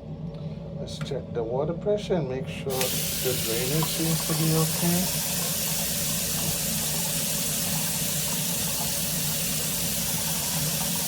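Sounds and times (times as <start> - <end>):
tap water pouring into basin: 2.7 - 11.0.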